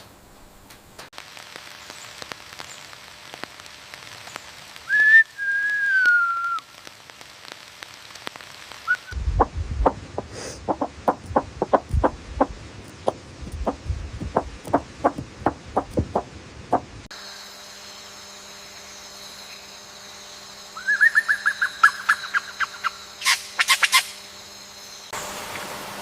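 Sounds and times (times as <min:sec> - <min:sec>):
steady hum: 0:06.8 - 0:20.8.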